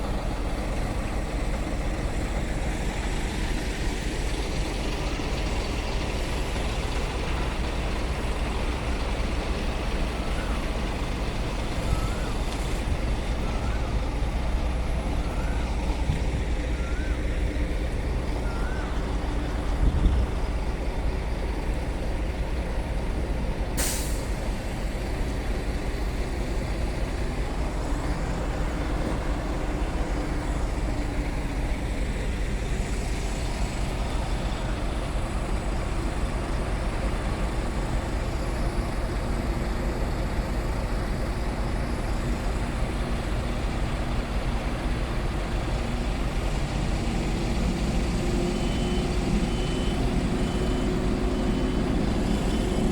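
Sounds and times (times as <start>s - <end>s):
truck diesel engine running: 0.0s - 52.9s
air brake hiss: 23.8s - 24.6s.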